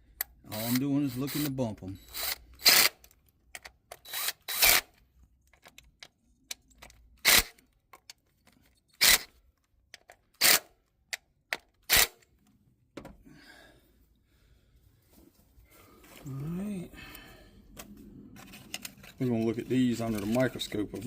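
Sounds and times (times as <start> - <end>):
drill driving screws: 0.5 - 3.0, 3.9 - 5.0, 7.2 - 7.6, 9.0 - 9.3, 10.4 - 10.7, 11.8 - 12.2.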